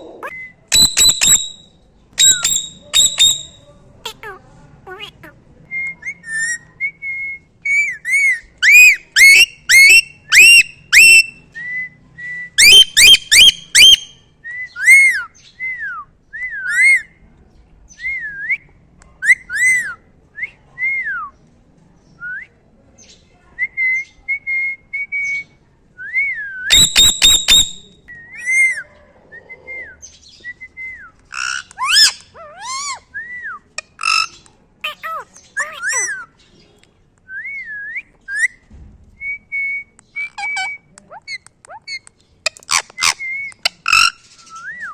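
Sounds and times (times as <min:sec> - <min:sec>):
harsh rapid parrot calls: 0:00.0 - 0:01.6, 0:02.2 - 0:05.3, 0:07.7 - 0:11.3, 0:12.6 - 0:14.2, 0:31.3 - 0:33.1, 0:33.8 - 0:36.3, 0:40.4 - 0:44.2
parrot whistling: 0:00.0 - 0:03.6, 0:07.7 - 0:11.4, 0:12.6 - 0:14.1, 0:26.7 - 0:28.7, 0:31.4 - 0:33.0, 0:34.8 - 0:36.3.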